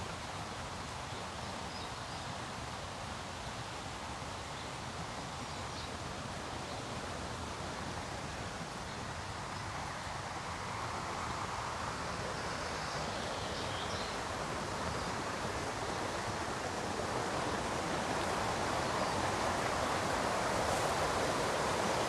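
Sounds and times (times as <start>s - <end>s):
river rapids rushing: 6.2s - 22.0s.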